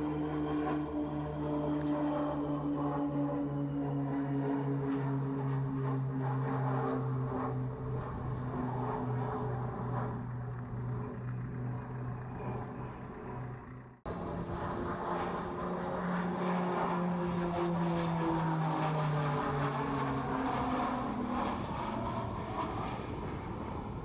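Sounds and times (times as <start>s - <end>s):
propeller drone: 0.0s - 24.0s
high turbine whine: 7.8s - 17.4s.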